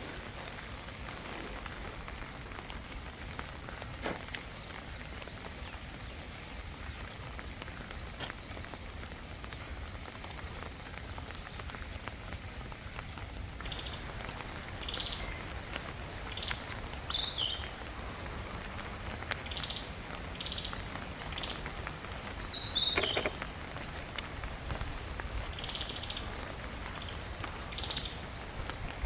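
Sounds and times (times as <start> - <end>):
steady rain pattering: 0.0 - 29.0
bird high calls: 13.6 - 17.9, 19.4 - 21.7, 22.4 - 23.4.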